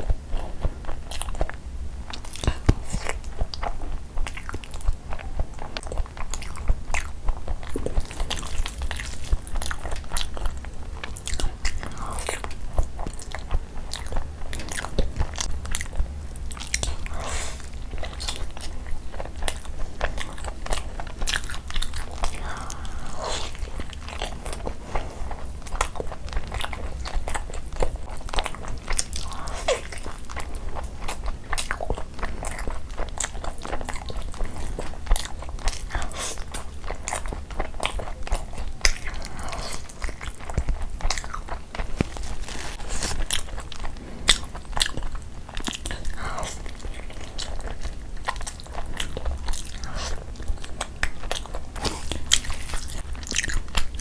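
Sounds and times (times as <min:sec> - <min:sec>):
wet chewing and lip smacks: 0:00.0 - 0:54.0.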